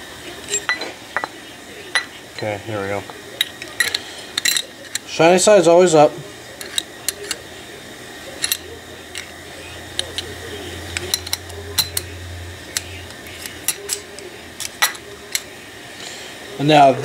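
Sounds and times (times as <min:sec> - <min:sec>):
small metal parts clicking: 0:03.4 - 0:05.1, 0:06.6 - 0:07.4, 0:08.4 - 0:09.3
faint low hum: 0:06.1 - 0:17.0.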